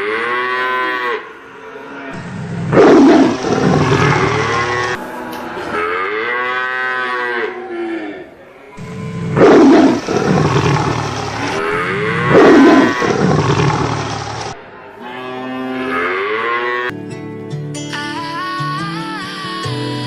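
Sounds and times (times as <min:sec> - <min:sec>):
cattle mooing: 0:00.0 - 0:05.0, 0:05.8 - 0:16.9.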